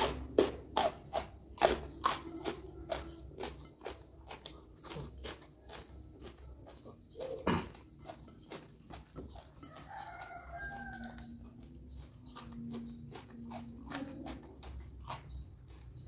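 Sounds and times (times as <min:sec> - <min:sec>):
chewing and crunching: 0:00.0 - 0:16.0
rooster crowing: 0:09.6 - 0:11.4.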